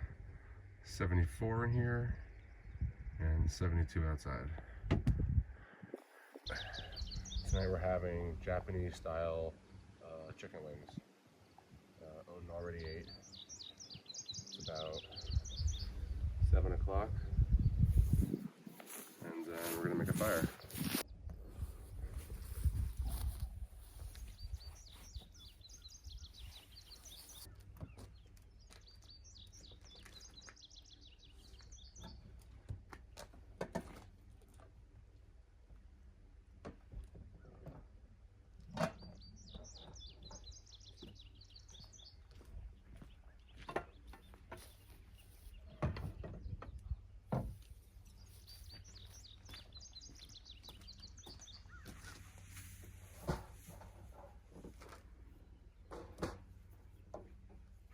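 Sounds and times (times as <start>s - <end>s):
songbird chirping: 6.0s - 33.4s, 37.1s - 57.9s
sharp knocks and clunks: 45.7s - 47.6s, 55.8s - 57.3s.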